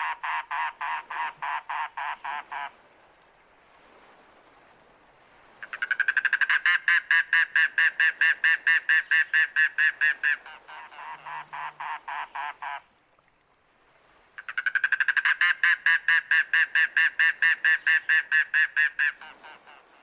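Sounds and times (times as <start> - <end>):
cuckoo croaking call: 0.0 - 2.7, 5.6 - 12.8, 14.4 - 20.0.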